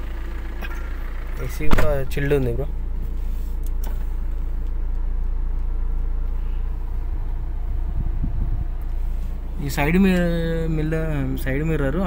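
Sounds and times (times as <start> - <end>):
diesel engine idling: 0.0 - 12.0
low bumps: 1.5 - 3.2.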